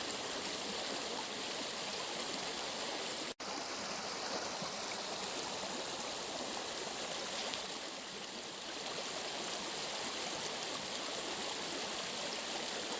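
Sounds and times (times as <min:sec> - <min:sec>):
water flowing: 0:00.0 - 0:12.9.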